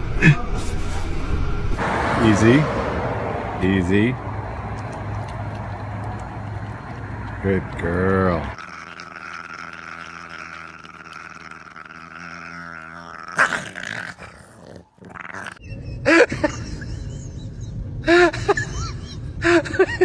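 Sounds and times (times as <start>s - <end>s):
dog growling: 6.1s - 15.6s.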